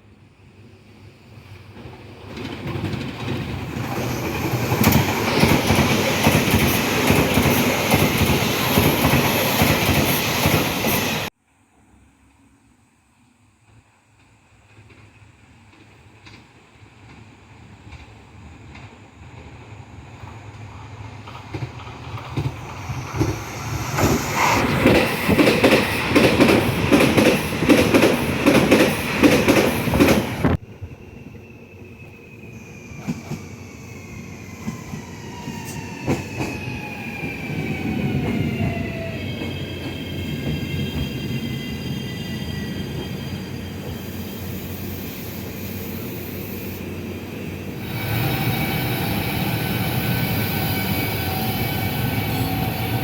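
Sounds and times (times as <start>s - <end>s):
train running with high whine: 0.0s - 11.3s, 12.0s - 53.0s
train wheels clattering over rail joints: 20.7s - 30.6s.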